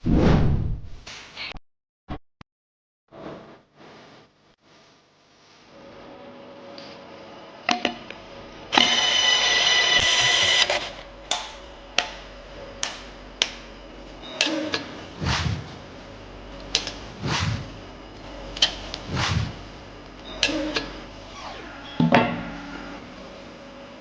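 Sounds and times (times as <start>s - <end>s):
power tool running: 8.3s - 23.7s
deep thuds: 19.0s - 19.8s.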